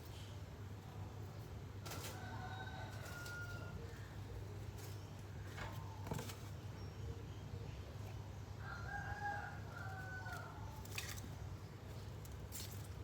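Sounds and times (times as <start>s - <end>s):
faint rooster crow: 1.8s - 4.4s, 8.5s - 11.0s.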